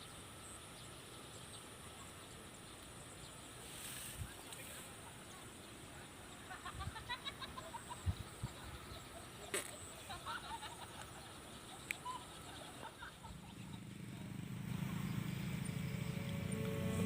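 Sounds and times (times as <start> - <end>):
low hum: 11.7 - 17.0.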